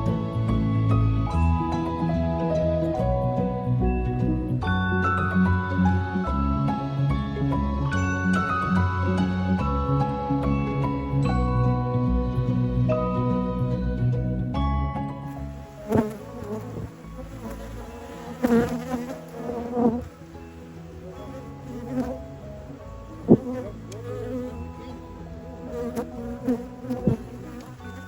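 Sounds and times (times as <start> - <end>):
honeybees buzzing: 15.6 - 28.0.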